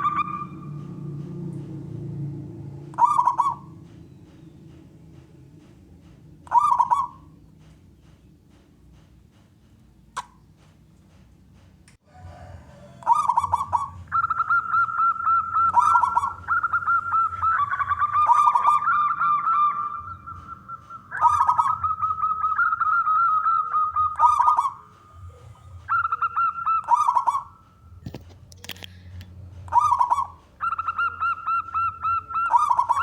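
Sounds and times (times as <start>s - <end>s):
doves cooing: 0.0s - 5.6s, 6.4s - 7.6s, 12.1s - 28.0s, 29.5s - 33.0s.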